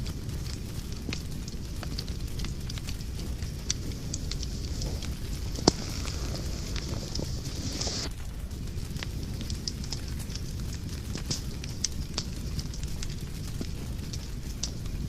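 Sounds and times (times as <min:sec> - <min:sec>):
loud pop from fire: 0:00.0 - 0:14.9
fire crackles: 0:00.0 - 0:15.0
fire flames rumbling: 0:00.0 - 0:15.0
brief hiss: 0:05.6 - 0:08.1.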